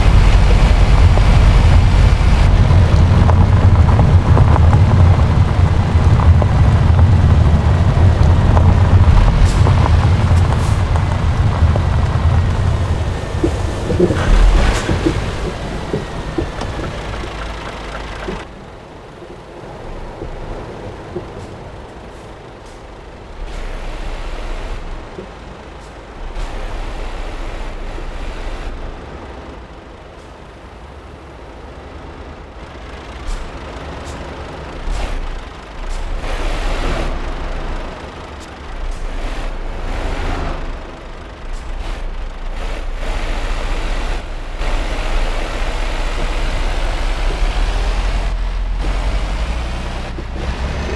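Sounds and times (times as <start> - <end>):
diesel truck engine running: 0.0 - 50.9.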